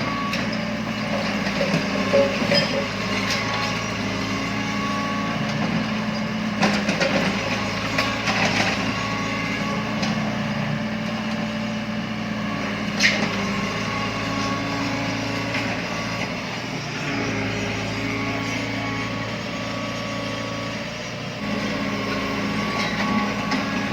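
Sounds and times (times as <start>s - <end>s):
excavator diesel engine running: 0.0s - 23.9s.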